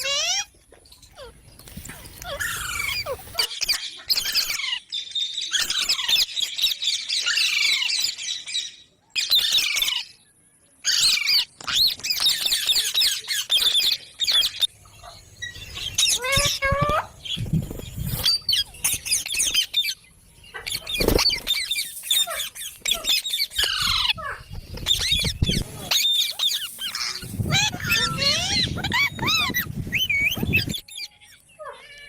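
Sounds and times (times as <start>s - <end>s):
parrot chattering and squawking: 0.0s - 0.5s, 1.1s - 4.8s, 18.2s - 30.9s.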